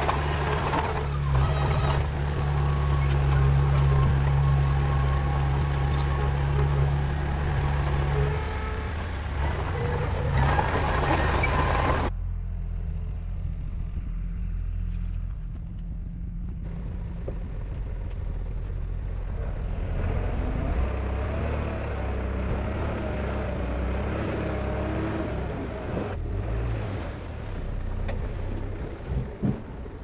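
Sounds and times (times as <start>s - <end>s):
heavy diesel machinery rumbling: 0.0s - 12.3s, 16.6s - 26.4s.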